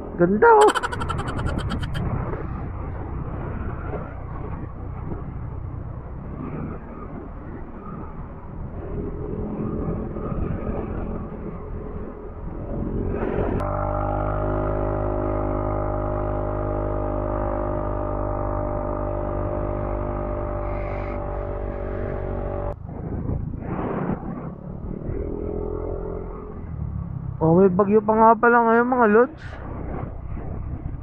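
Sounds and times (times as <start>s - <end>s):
wind noise on microphone: 0.0s - 13.6s, 21.8s - 25.5s, 29.5s - 31.0s.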